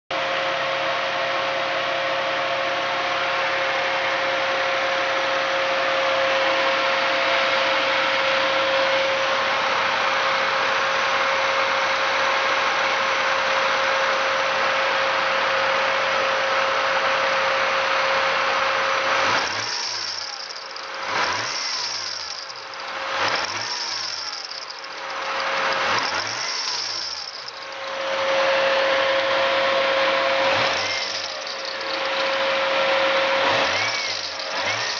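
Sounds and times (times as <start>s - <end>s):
car engine revving: 18.9s - 34.9s
metallic clashing from drive belt: 19.4s - 28.2s, 30.5s - 32.7s, 33.6s - 34.9s
steady whine: 22.1s - 34.9s.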